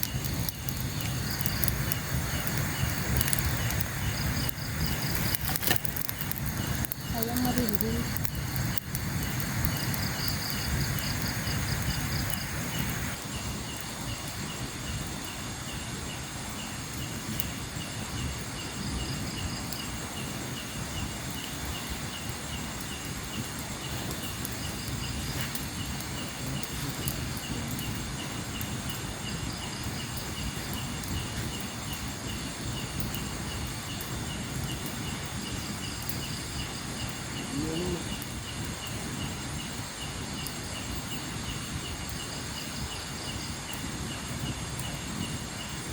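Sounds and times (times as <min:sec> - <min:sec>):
insect trilling: 0:00.0 - 0:13.8, 0:18.1 - 0:38.6
steady low rumble: 0:00.0 - 0:39.5
hiss: 0:00.0 - 0:45.9
insect chirping steadily: 0:00.0 - 0:45.9.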